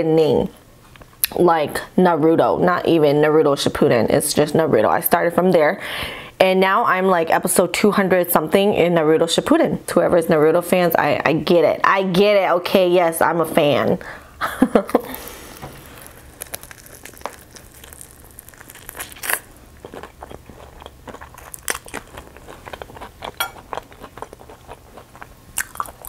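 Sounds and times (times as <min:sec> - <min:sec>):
soft wet chewing: 0:15.0 - 0:26.0
crunching fried chicken: 0:15.1 - 0:26.0.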